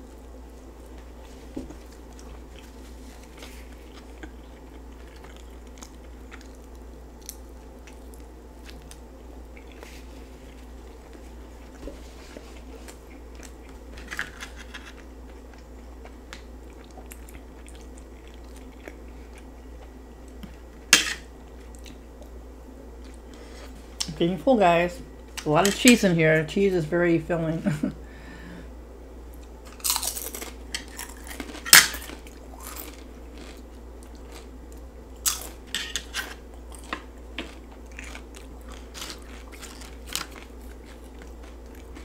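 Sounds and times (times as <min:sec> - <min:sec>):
steady low hum: 0:00.0 - 0:42.0
chewing sounds: 0:00.9 - 0:20.6, 0:21.5 - 0:22.4, 0:29.3 - 0:42.0.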